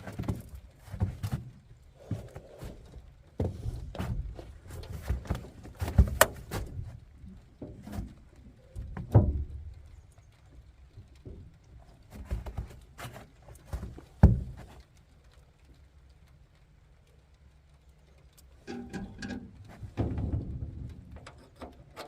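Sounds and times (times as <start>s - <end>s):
metal knocks and clunks: 7.6s - 9.8s, 18.6s - 22.0s.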